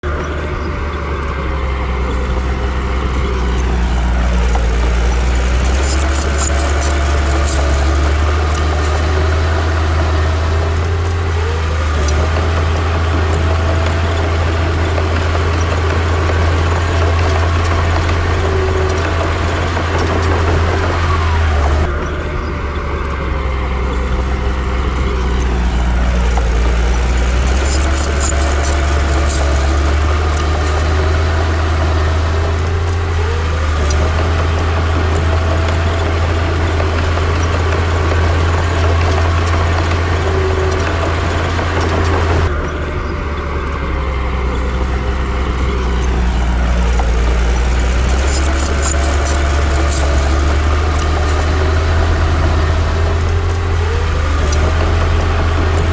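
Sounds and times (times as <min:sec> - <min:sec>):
heavy diesel engine rumbling: 0:00.0 - 0:55.9.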